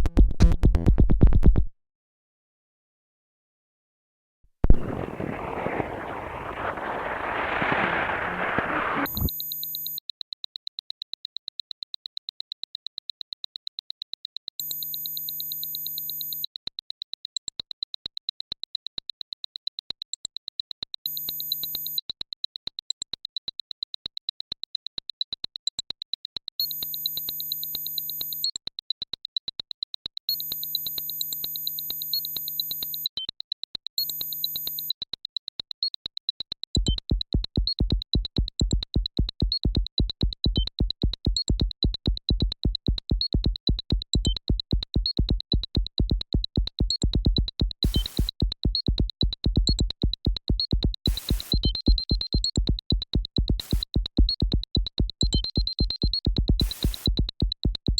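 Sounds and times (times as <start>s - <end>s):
burst of synthesized noise: 4.7s - 9.3s.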